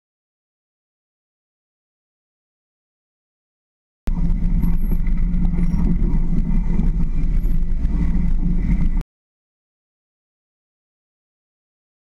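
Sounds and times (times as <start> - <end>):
car engine droning: 4.1 - 9.0.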